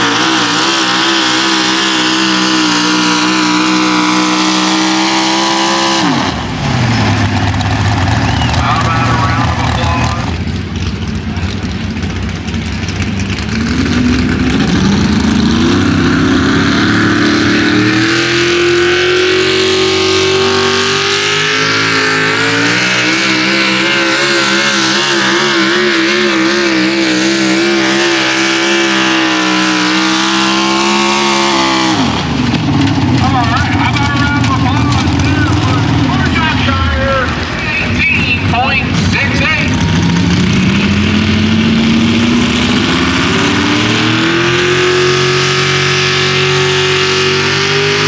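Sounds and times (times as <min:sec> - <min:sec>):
truck engine at full throttle: 0:00.0 - 0:48.0.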